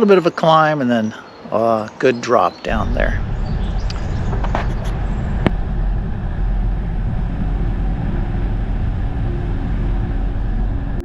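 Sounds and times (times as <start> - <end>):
wind rumble on microphone: 2.7 - 11.0.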